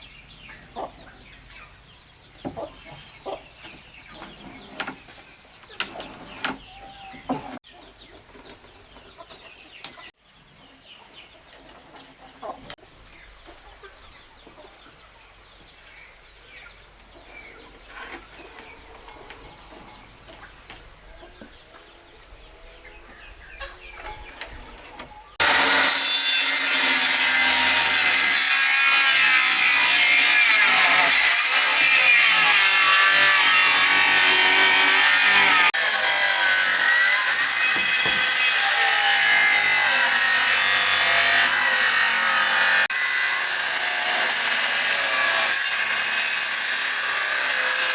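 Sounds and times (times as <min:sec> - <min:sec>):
power saw cutting wood: 0:02.4 - 0:07.6, 0:23.8 - 0:47.9.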